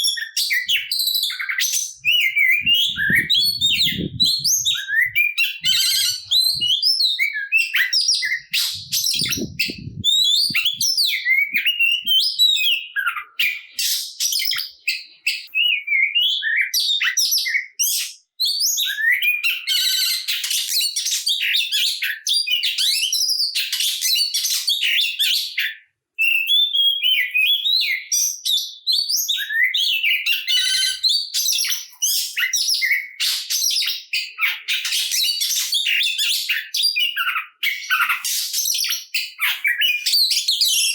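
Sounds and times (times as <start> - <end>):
songbird singing whistles and trills: 0.0 - 40.9.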